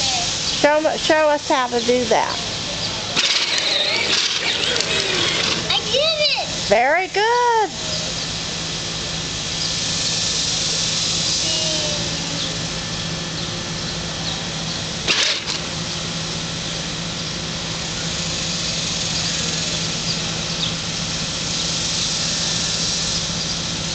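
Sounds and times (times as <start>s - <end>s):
toy tractor motor hum: 3.2s - 6.5s, 9.8s - 12.7s, 17.9s - 23.9s.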